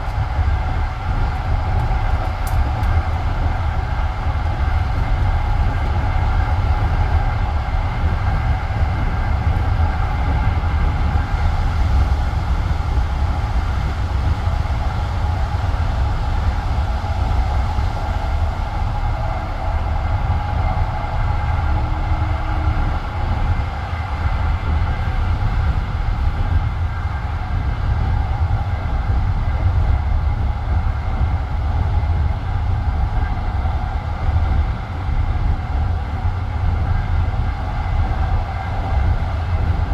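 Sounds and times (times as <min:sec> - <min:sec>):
constant hum: 0:00.0 - 0:39.9
train wheels rumbling on rails: 0:00.0 - 0:39.9.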